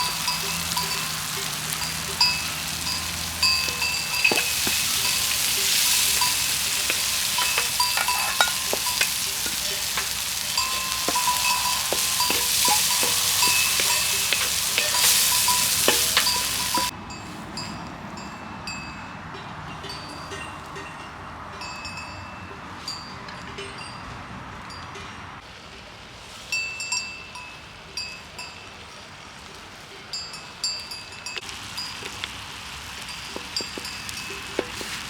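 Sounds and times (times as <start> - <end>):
crackles and clicks: 0.0 - 16.9, 31.4 - 35.0
food sizzling in hot oil: 0.0 - 16.9, 31.4 - 35.0.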